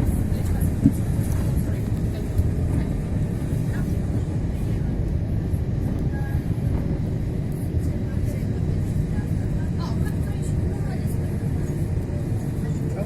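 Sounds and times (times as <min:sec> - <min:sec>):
jet engines at takeoff thrust: 0:00.0 - 0:13.0.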